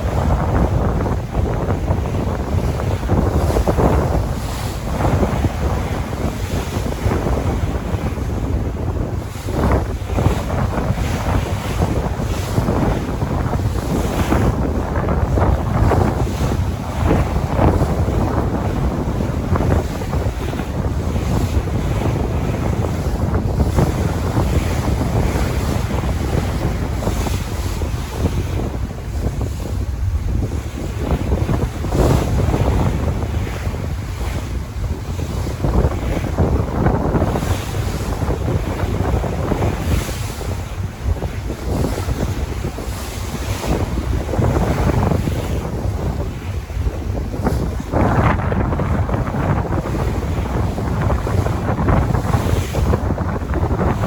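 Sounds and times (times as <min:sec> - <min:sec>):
sea waves breaking: 0:00.0 - 0:54.0
wind buffeting microphone: 0:00.0 - 0:54.0.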